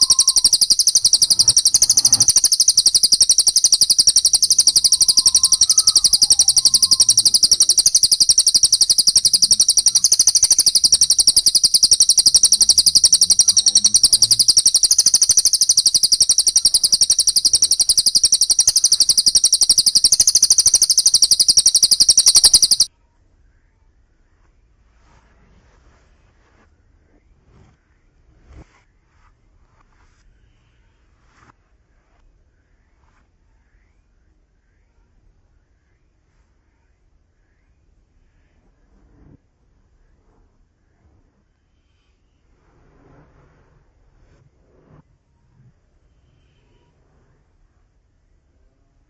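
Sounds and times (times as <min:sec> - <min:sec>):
rapid high-pitched songbird chirping: 0:00.0 - 0:22.9.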